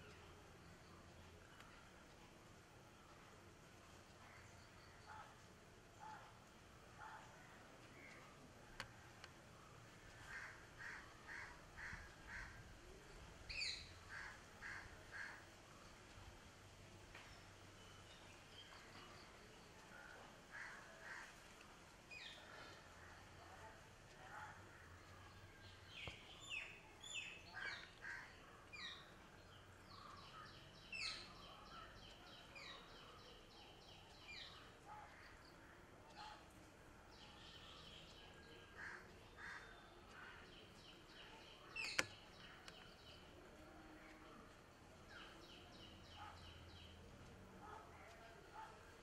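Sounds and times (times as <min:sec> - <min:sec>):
faint bird chirps and calls: 0:00.0 - 0:49.0
sharp click: 0:41.8 - 0:42.9.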